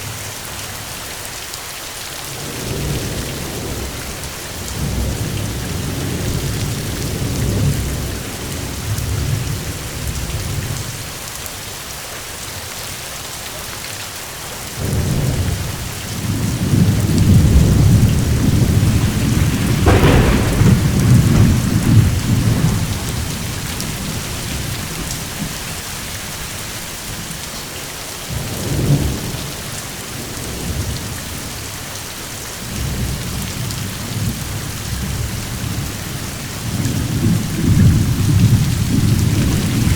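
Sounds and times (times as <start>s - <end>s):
heavy rain: 0.0s - 39.9s
thunder crack: 14.8s - 25.7s
thunder rumbling: 14.8s - 27.3s, 36.7s - 39.9s.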